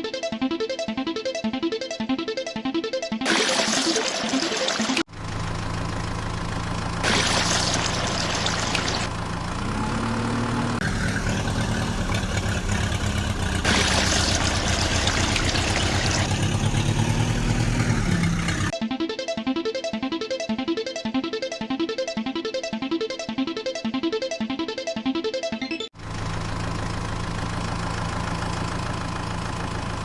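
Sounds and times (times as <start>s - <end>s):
engine running and revving: 5.0s - 18.8s.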